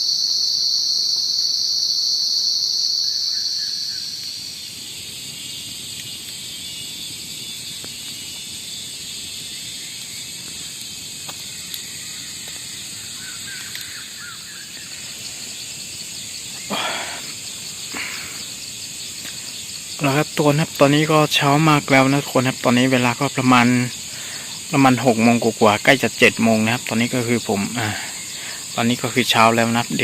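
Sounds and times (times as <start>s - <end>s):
high-pitched insect chorus: 0.0s - 30.0s
faint bird chirps: 3.0s - 4.4s.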